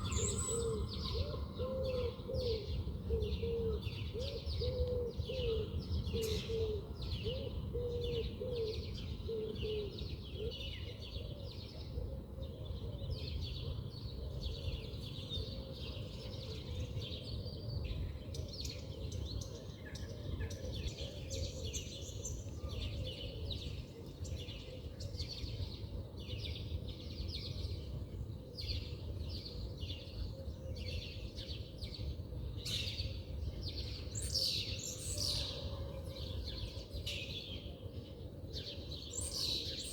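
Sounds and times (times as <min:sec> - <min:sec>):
lower bird call: 0:00.0 - 0:02.7
small birds chirping: 0:00.0 - 0:02.7.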